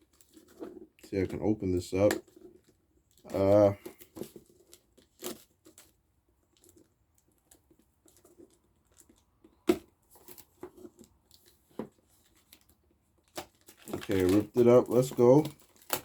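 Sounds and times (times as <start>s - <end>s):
packaging being torn open: 12.6s - 16.0s.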